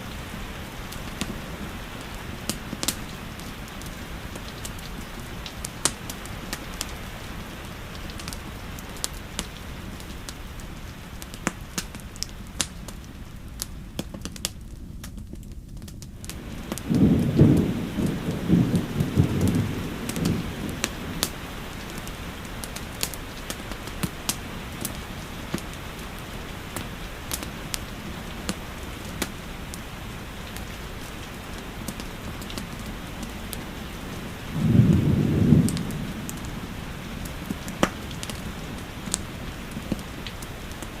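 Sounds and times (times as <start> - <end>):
steady rain: 0.0 - 41.0
wood fire crackling: 0.0 - 41.0
thunder rolling: 16.4 - 21.4, 34.5 - 40.0.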